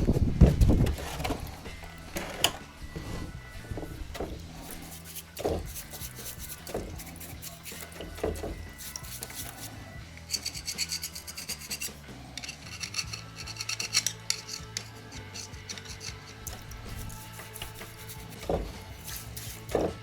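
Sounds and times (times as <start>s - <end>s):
hand tool scraping metal: 4.2s - 20.0s.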